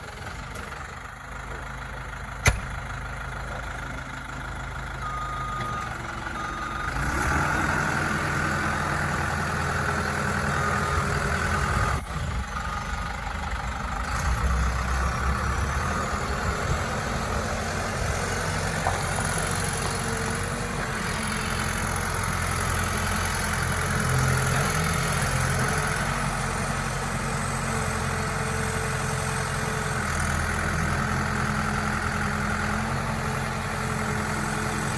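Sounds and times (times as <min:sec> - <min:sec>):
diesel engine running: 0:00.0 - 0:34.9
sharp click: 0:02.4 - 0:02.8.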